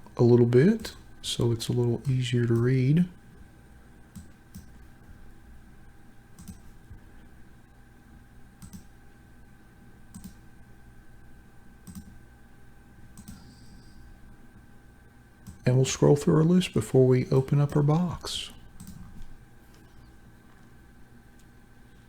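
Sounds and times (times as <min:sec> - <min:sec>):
faint electrical hum: 0:00.0 - 0:22.0
computer mouse clicking: 0:04.1 - 0:04.8, 0:06.4 - 0:06.7, 0:08.6 - 0:08.9, 0:10.1 - 0:10.4, 0:11.8 - 0:12.2, 0:13.2 - 0:14.0, 0:18.8 - 0:19.9.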